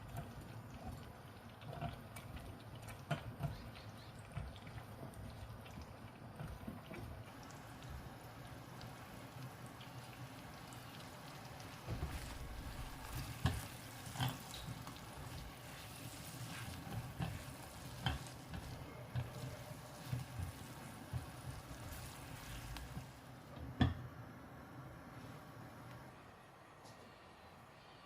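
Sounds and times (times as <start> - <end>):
food sizzling in frying pan: 7.2 - 23.5.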